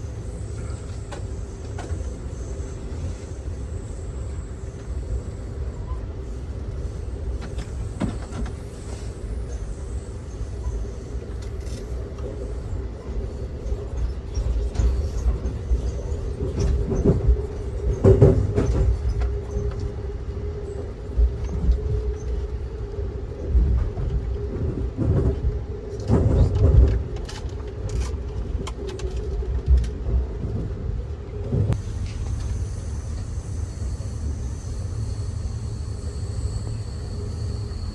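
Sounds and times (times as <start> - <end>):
constant hum: 0.0 - 37.9
train wheels rumbling on track: 0.0 - 37.9.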